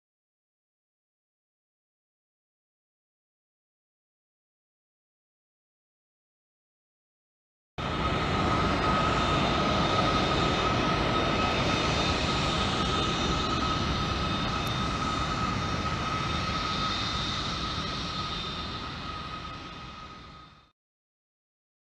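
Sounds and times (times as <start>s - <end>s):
jet engines whining: 7.8s - 20.7s.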